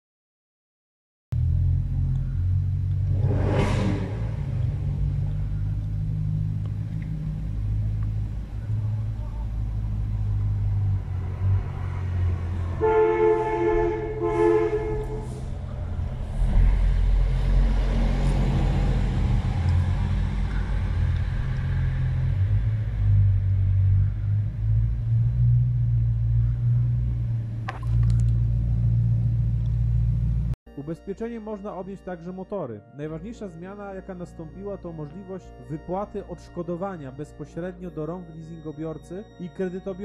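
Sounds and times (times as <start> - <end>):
car engines rumbling: 1.3 - 30.6
two-note car horn: 12.6 - 15.6.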